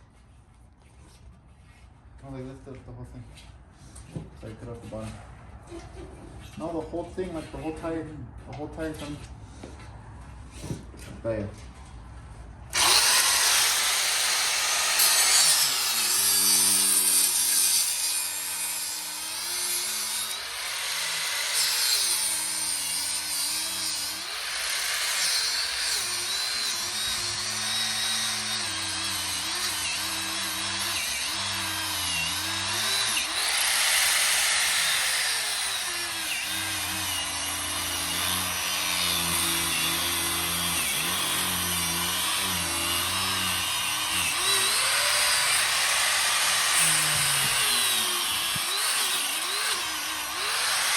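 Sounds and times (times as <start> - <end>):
angle grinder cutting tire: 12.7 - 50.9.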